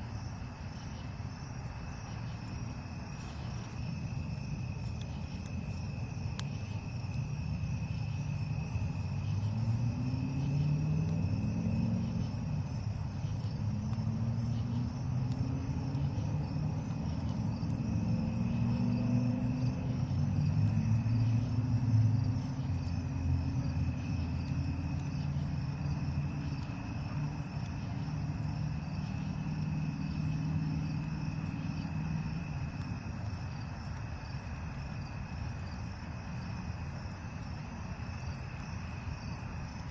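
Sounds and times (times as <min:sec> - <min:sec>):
crickets chirping: 0:00.0 - 0:39.9
low rumble of passing engine: 0:00.1 - 0:39.9.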